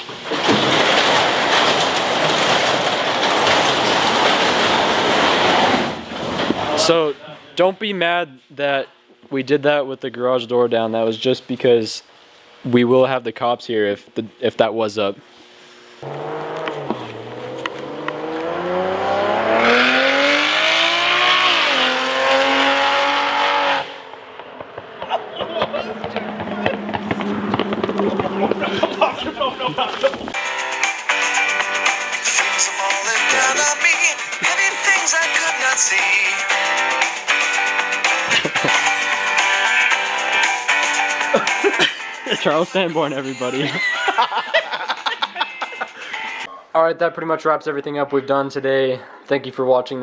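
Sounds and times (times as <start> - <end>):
car engine at high revs: 16.0 - 29.1.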